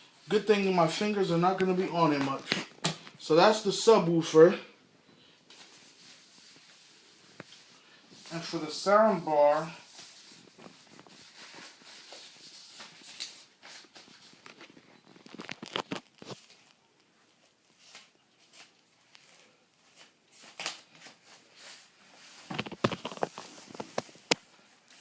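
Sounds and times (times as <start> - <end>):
plastic wrap and cardboard rustling: 5.5 - 25.0.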